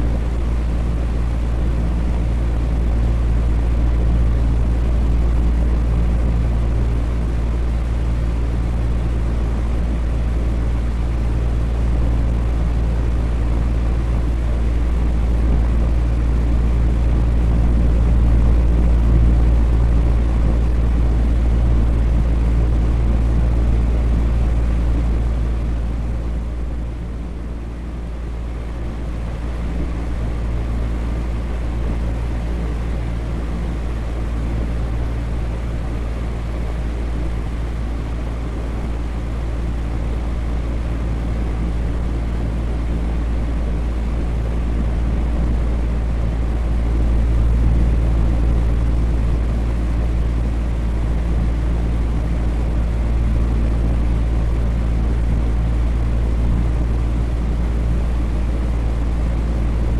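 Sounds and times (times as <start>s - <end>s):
electric fan running: 0.0s - 59.9s.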